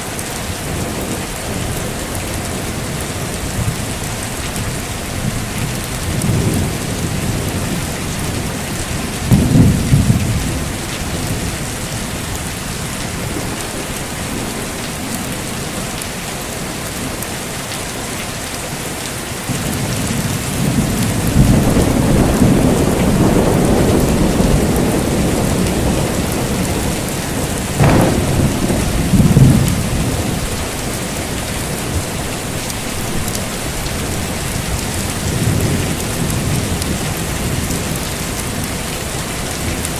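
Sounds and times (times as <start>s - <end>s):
heavy rain: 0.0s - 39.9s
rolling thunder: 2.5s - 12.6s, 19.5s - 32.4s
sharp crack of thunder: 6.0s - 11.5s, 19.5s - 30.9s.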